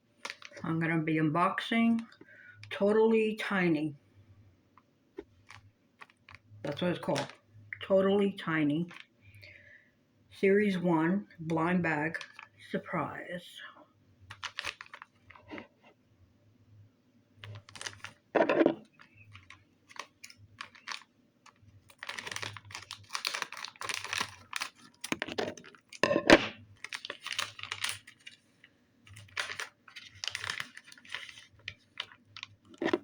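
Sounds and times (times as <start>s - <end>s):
plastic packaging crinkling: 0.2s - 0.6s, 5.3s - 7.5s, 8.8s - 9.1s, 12.1s - 12.6s, 14.2s - 15.8s, 17.4s - 33.0s.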